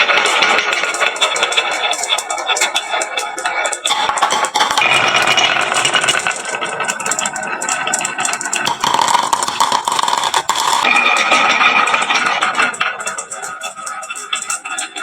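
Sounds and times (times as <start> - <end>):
marbles rattling down wooden run: 3.8 - 15.0.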